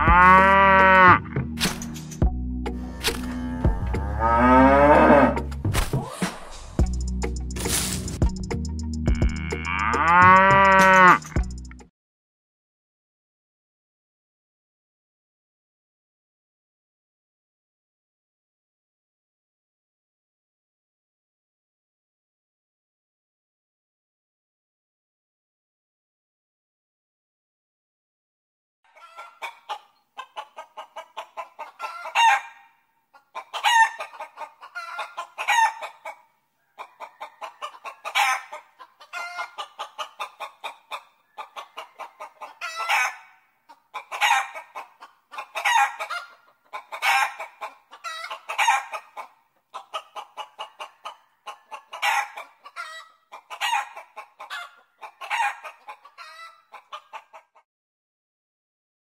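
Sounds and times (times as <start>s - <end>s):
chickens clucking: 28.9s - 57.6s.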